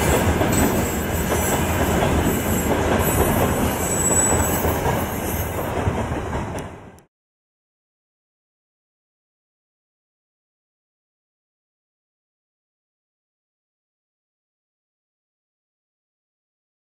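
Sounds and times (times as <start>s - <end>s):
high wheel squeal: 0.0s - 5.7s
freight train wagons rumbling: 0.0s - 7.0s.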